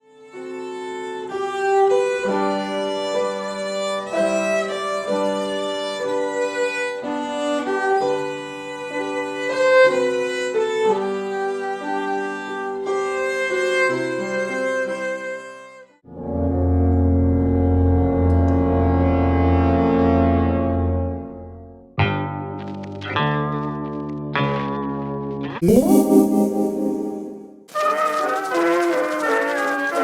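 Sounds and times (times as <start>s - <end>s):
violin melody with accompaniment: 0.0s - 16.0s.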